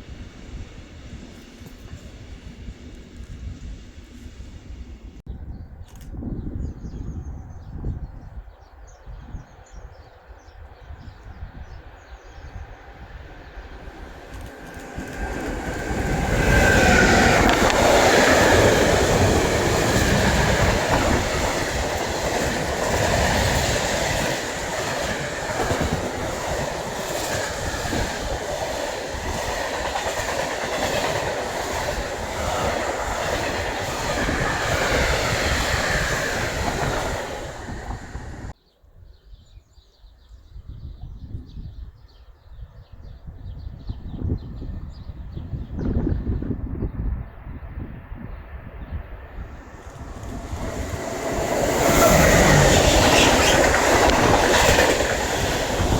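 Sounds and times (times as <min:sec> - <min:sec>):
train wheels clattering: 0:14.0 - 0:38.5, 0:49.7 - 0:55.9.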